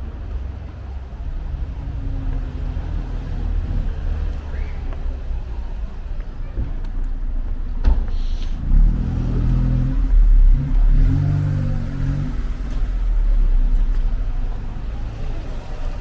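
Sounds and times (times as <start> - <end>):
car engine revving: 8.5 - 16.0.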